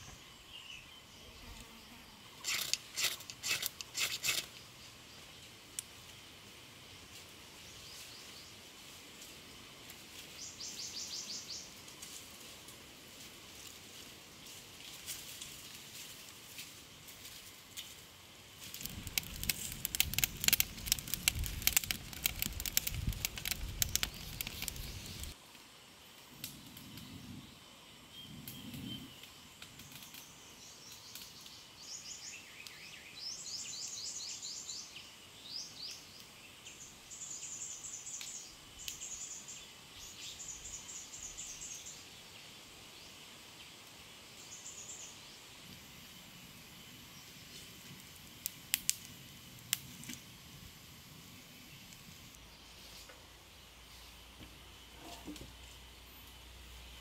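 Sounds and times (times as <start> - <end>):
dense crackling and rustling: 18.6 - 25.4.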